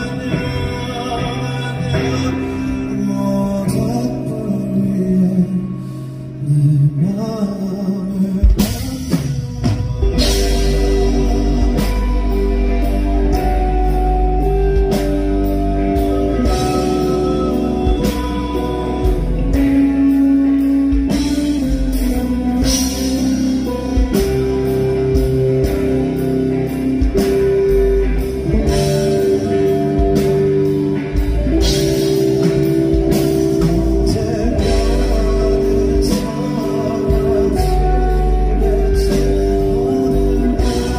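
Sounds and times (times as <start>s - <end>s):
guitar melody: 0.0s - 40.9s
live rock band playing: 0.0s - 40.9s
steady drum beat: 8.4s - 40.9s.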